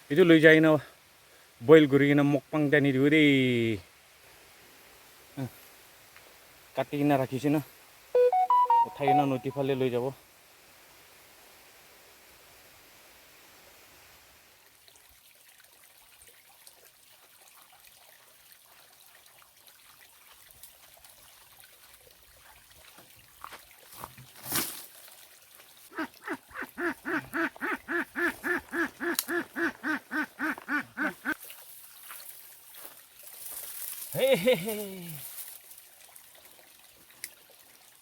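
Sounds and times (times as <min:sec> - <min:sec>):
duck quacking: 0:25.9 - 0:31.4.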